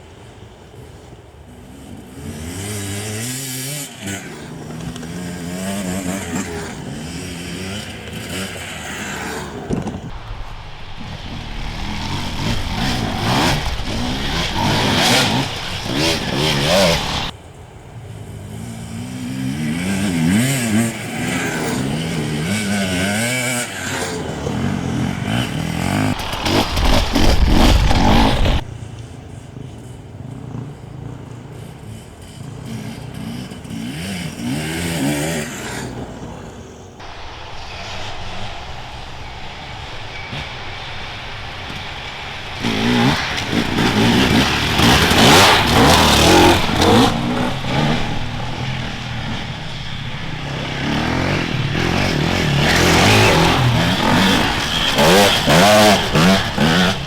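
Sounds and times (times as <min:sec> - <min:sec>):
motorcycles revving past: 0:00.0 - 0:10.2, 0:10.8 - 0:57.0.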